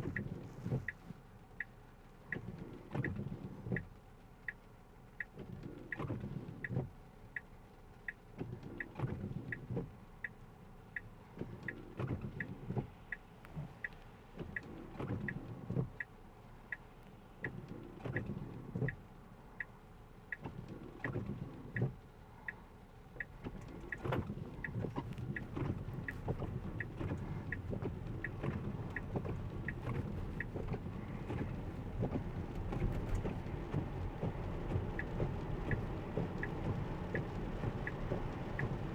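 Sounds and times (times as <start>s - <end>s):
turn signal ticking: 0.0s - 38.9s
rain: 13.5s - 38.9s
tyre road noise: 23.1s - 38.9s.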